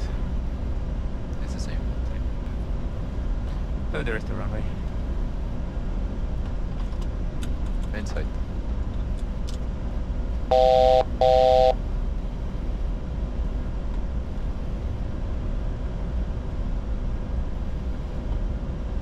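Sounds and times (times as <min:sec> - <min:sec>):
flight deck noise: 0:00.0 - 0:15.1.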